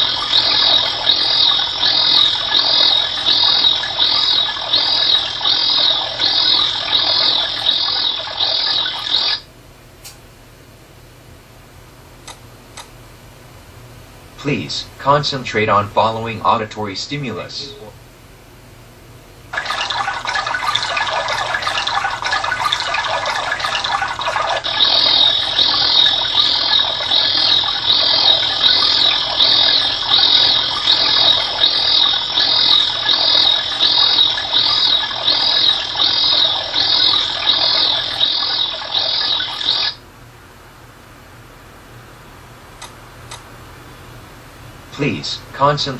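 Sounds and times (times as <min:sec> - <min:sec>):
steady noisy sound: 0:00.0 - 0:10.2, 0:12.2 - 0:45.9
high chirping call: 0:17.6 - 0:17.9, 0:24.8 - 0:40.0.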